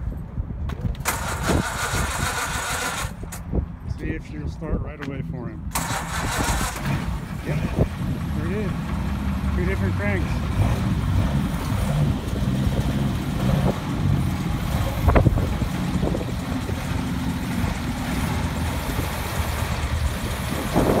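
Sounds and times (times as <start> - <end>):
car engine idling: 5.0 - 21.0.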